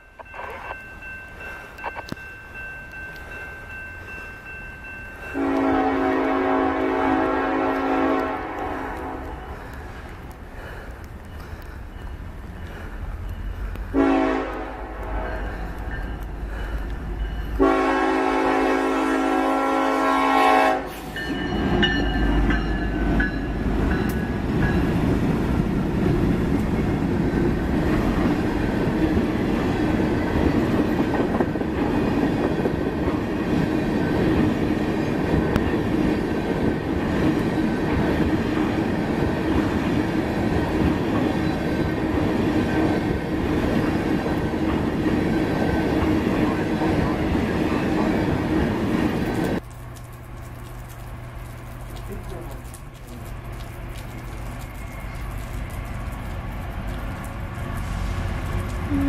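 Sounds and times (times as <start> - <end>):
train wheels rumbling and clattering: 5.1 - 19.0, 20.9 - 59.0
train horn blasts: 5.4 - 9.4, 13.9 - 15.6, 17.6 - 21.6.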